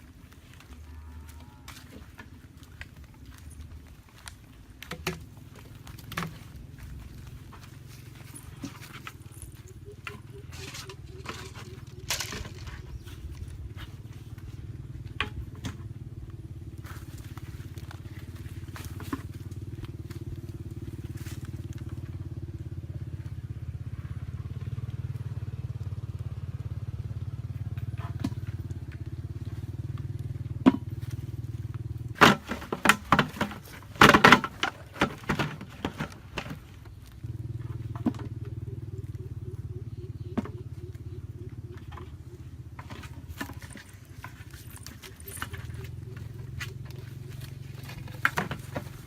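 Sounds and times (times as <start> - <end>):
small engine running: 0.0 - 49.0
loud knocks and crackling clatter: 32.1 - 36.7.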